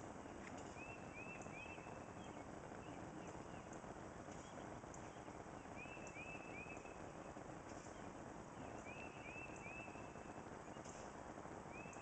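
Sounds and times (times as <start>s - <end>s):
low background rumble: 0.0s - 12.0s
songbird whistled notes: 0.6s - 3.7s, 4.3s - 7.0s, 7.8s - 11.1s, 11.7s - 12.0s.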